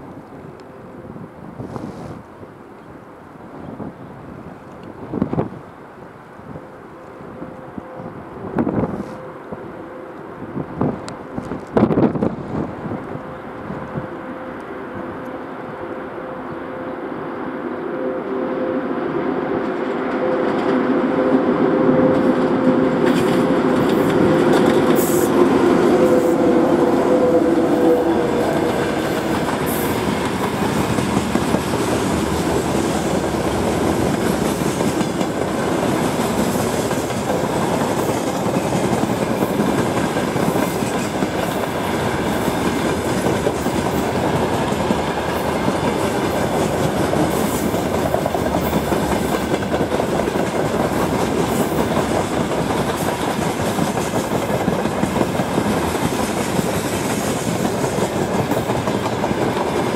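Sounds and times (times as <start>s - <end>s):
train wheels clacking over rail joints: 22.1s - 59.9s.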